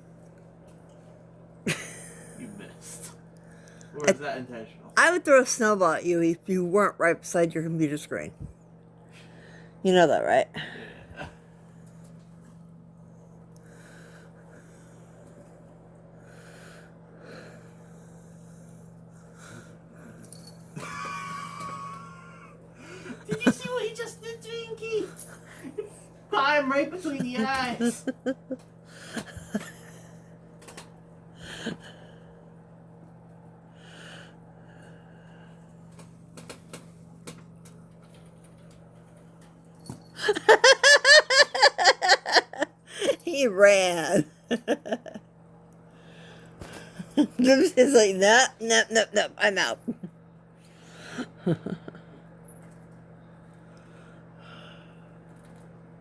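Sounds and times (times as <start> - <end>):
steady low hum: 0.0 - 56.0
person laughing rhythmically: 40.2 - 42.8, 44.5 - 45.2.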